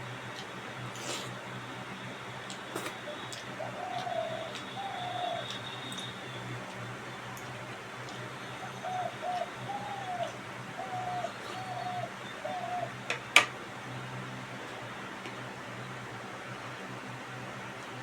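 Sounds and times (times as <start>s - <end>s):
dove cooing: 2.7s - 13.5s.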